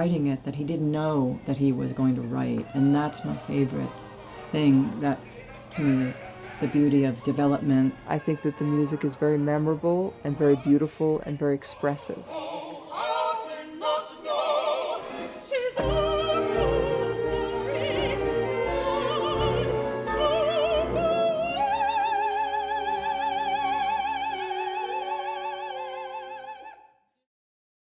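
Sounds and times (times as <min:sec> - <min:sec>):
operatic singing: 0:01.8 - 0:27.0
orchestra playing: 0:15.8 - 0:26.4.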